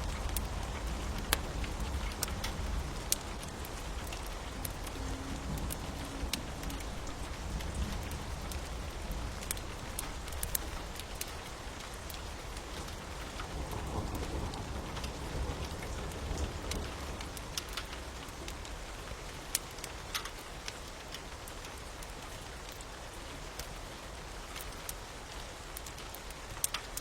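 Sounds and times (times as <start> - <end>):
low rumble: 0.0 - 11.3
steady rain: 0.0 - 27.0
wood fire crackling: 0.0 - 27.0.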